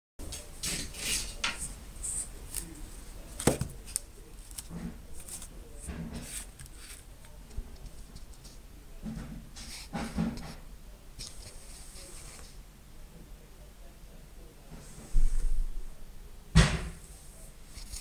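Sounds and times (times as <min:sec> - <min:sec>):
sharp knock: 0:16.6 - 0:17.0.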